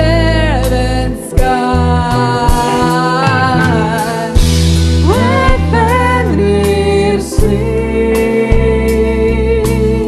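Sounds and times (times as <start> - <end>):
steady low bass: 0.0 - 10.0
band playing held melody: 0.6 - 9.9
drum hit: 2.6 - 5.9.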